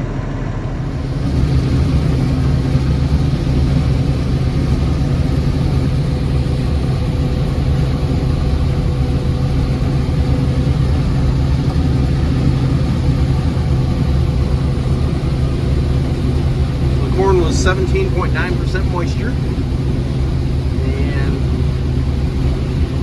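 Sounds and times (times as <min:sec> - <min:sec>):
combine harvester running: 0:00.0 - 0:23.0
thin steady tone: 0:12.4 - 0:19.8.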